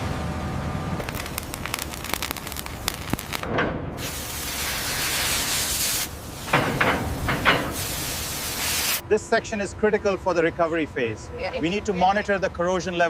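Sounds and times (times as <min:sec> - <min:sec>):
rapid crackling clicks: 0:01.0 - 0:03.5
steady spray hiss: 0:04.0 - 0:09.0.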